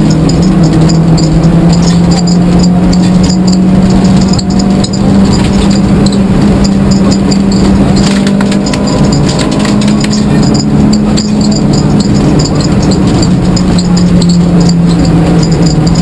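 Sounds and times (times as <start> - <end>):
car engine from inside cabin: 0.0 - 16.0
clicks: 0.0 - 16.0
road noise: 0.0 - 16.0.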